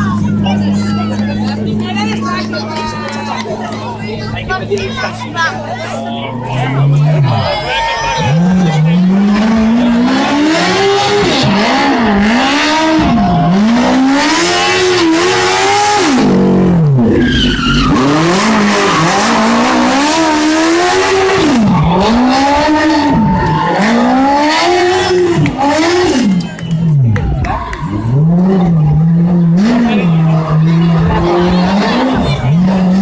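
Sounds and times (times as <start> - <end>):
car engine revving: 0.0 - 33.0
tyres squealing: 17.1 - 27.1.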